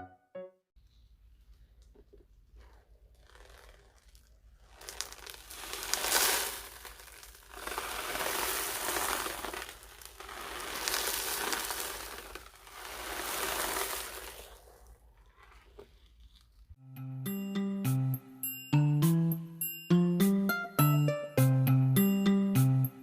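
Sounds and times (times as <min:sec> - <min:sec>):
beads rolling in ocean drum: 0:02.6 - 0:16.5.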